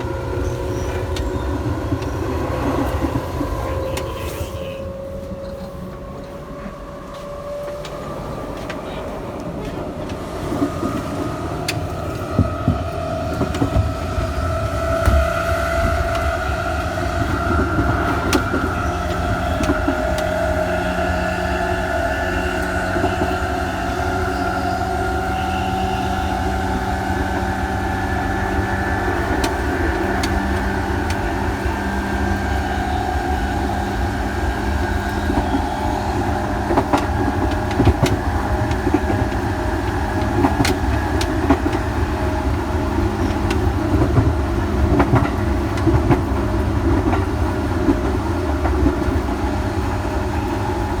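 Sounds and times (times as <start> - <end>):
rail clicks: 0.0 - 51.0
train motors whining: 0.0 - 51.0
wheels rumbling on rail: 0.0 - 51.0.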